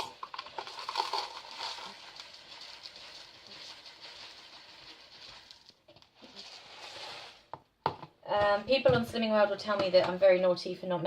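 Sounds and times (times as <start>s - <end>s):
oats pouring into container: 0.0s - 7.5s.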